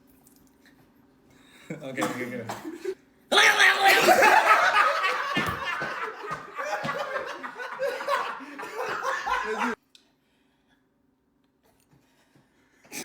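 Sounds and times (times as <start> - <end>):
people laughing: 2.8 - 9.8.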